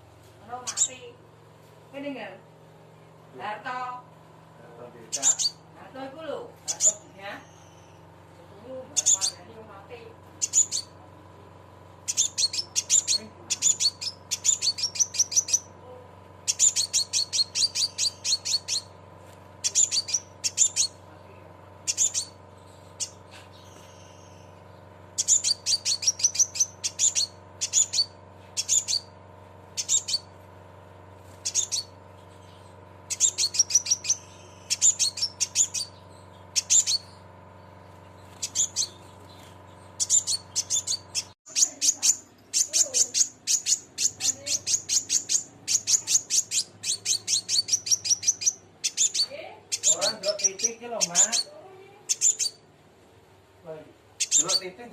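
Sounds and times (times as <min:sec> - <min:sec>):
faint steady hum: 0:00.0 - 0:54.9
bird chirping rapidly: 0:00.4 - 0:01.2, 0:04.8 - 0:11.0, 0:11.9 - 0:30.5, 0:31.2 - 0:52.8, 0:53.7 - 0:54.9.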